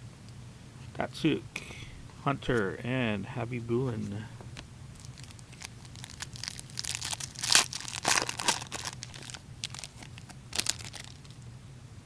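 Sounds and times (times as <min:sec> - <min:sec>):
card wrappers crinkling: 0:05.0 - 0:11.4.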